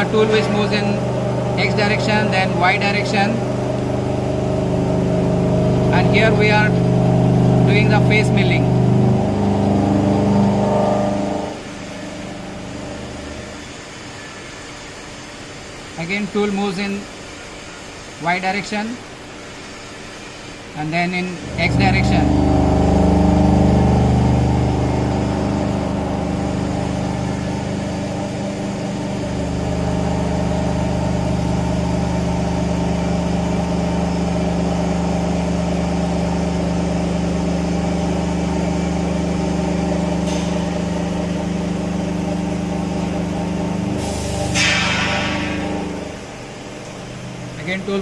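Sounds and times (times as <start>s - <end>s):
milling machine cutting hum: 0.0s - 14.4s, 21.3s - 48.0s.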